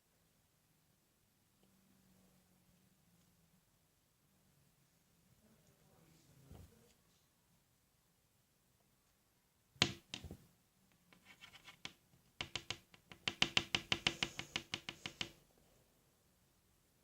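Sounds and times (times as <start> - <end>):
knock on foam toy: 9.8 - 10.4, 11.8 - 15.4
light taps on foam toy: 9.8 - 10.4, 11.8 - 15.4.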